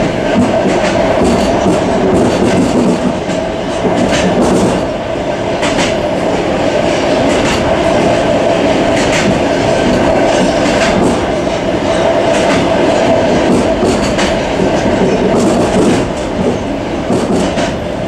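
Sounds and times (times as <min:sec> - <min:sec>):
wheels clacking over rail joints: 0:00.0 - 0:04.9, 0:08.9 - 0:17.8
train running noise with hum: 0:00.0 - 0:18.0.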